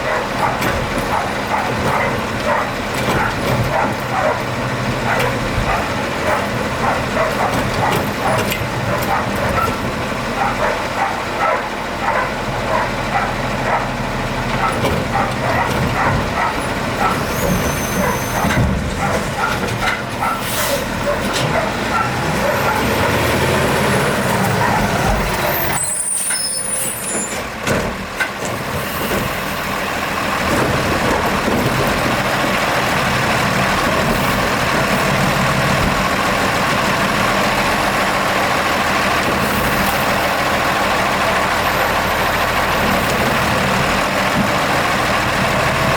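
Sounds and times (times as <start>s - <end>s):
garbage truck diesel engine: 0.0s - 45.9s
knocks and clatter: 0.4s - 4.4s, 14.5s - 17.6s, 27.3s - 29.3s, 30.4s - 36.7s.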